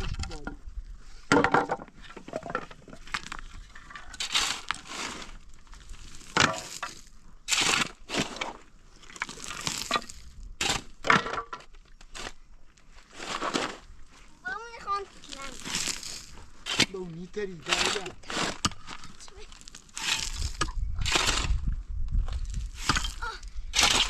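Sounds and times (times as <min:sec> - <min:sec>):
crunching and cracking: 0:02.9 - 0:11.1, 0:15.2 - 0:17.1, 0:17.7 - 0:21.7.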